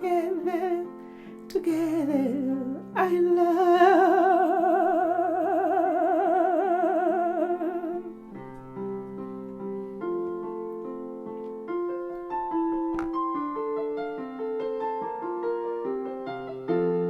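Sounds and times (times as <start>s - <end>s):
person singing long note with vibrato: 1.6s - 8.2s.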